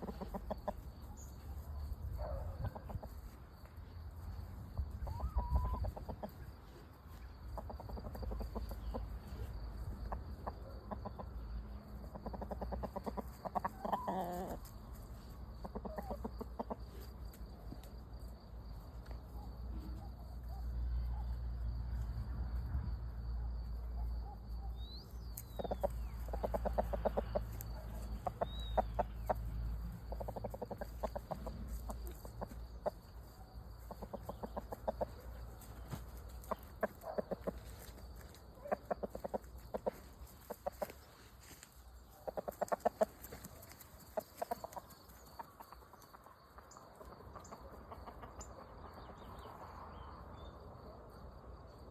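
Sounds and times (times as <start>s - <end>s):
chickens clucking: 0.0s - 18.2s, 25.1s - 49.9s
chicken squawk: 5.0s - 6.4s, 12.2s - 14.7s, 15.7s - 16.7s.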